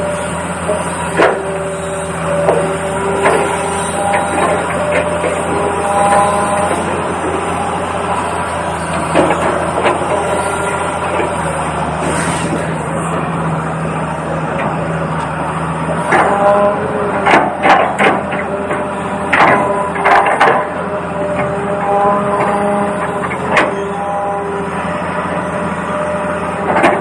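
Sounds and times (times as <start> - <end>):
toy excavator motor hum: 0.0 - 27.0
sharp clacks and knocks: 19.3 - 20.7.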